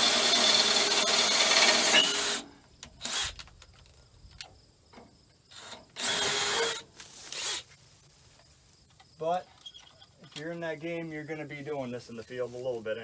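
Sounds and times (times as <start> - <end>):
power drill boring into steel: 0.0 - 3.4, 5.6 - 6.8.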